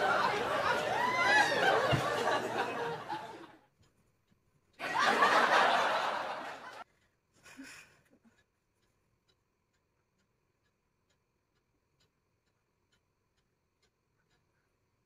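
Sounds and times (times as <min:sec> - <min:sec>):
women giggling and laughing: 0:00.0 - 0:03.5.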